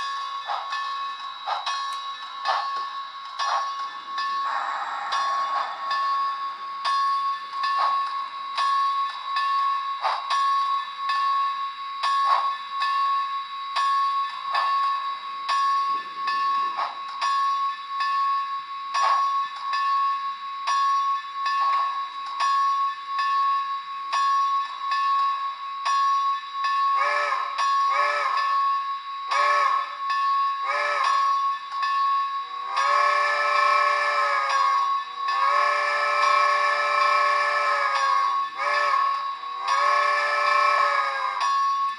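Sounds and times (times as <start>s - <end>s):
steam locomotive chuffing: 0.0s - 41.9s
long chime whistle blasts: 22.6s - 41.9s.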